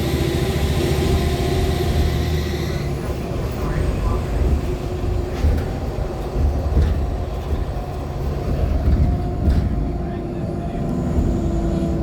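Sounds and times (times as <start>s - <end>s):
bus cabin rumble: 0.0s - 12.0s
body knocks and rattles: 4.4s - 9.8s.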